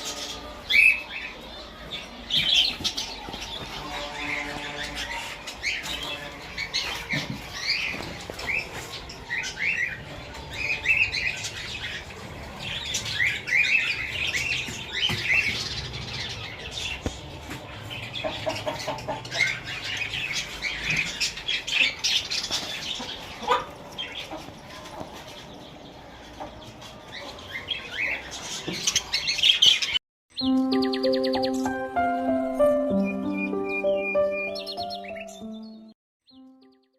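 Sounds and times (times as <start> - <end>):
birds chirping and chattering: 0.0 - 36.8.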